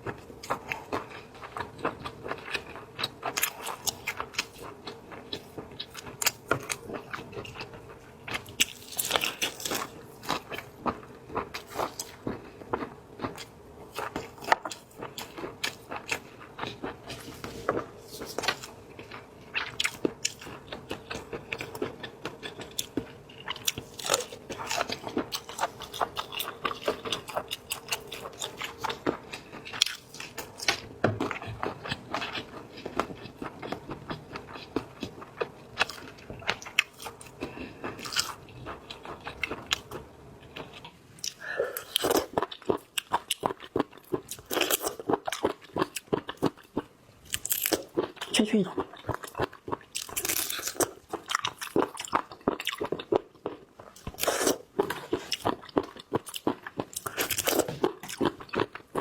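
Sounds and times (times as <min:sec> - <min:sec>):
food being chewed: 0:00.0 - 0:59.0.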